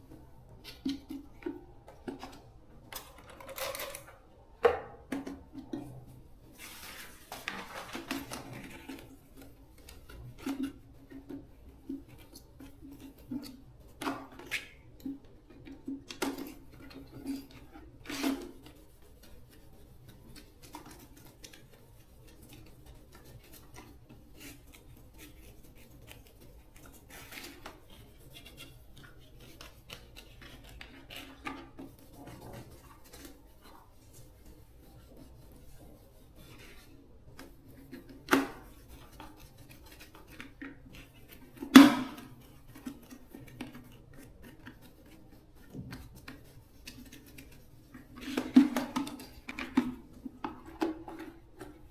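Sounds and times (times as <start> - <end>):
small clicks and scraping: 0.1 - 4.3.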